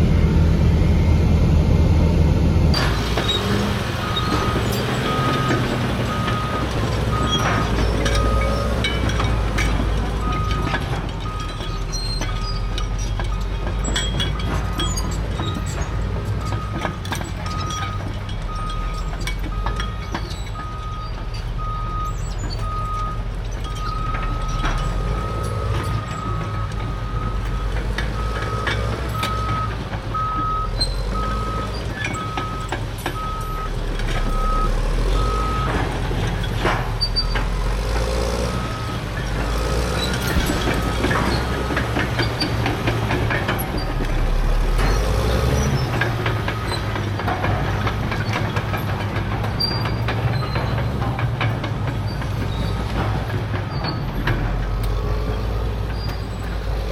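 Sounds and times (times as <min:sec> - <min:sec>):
diesel engine rumble: 0:00.0 - 0:56.9
reversing alarm beeping: 0:04.0 - 0:11.8, 0:16.4 - 0:35.9.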